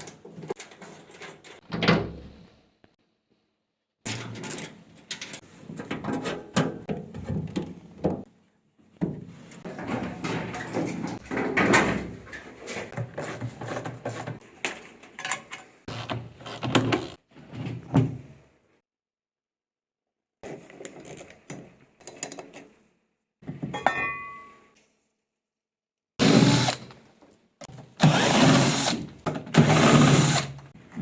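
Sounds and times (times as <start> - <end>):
tools and metal parts clanking: 4.1 - 7.6, 9.6 - 15.8, 23.6 - 24.8.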